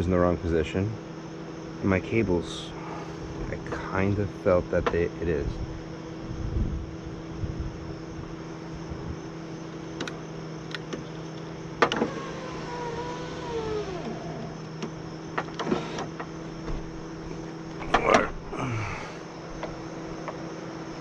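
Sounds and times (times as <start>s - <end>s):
power window motor humming: 9.7s - 18.5s
wavering squeal: 12.1s - 15.2s.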